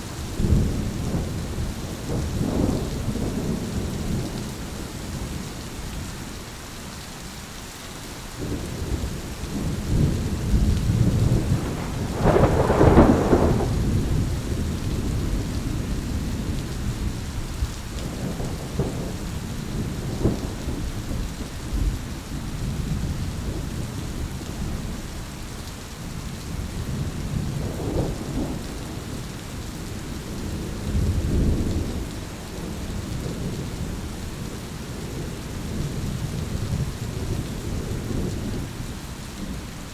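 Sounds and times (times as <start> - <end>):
steady rain: 0.0 - 39.9
thunder rumbling: 8.4 - 25.0.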